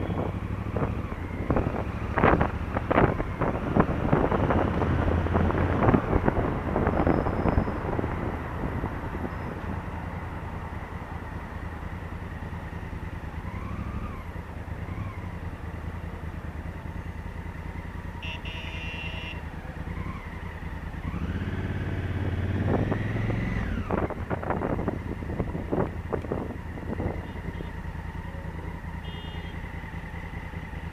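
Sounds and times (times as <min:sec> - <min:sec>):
motorcycle engine running: 0:10.1 - 0:30.9.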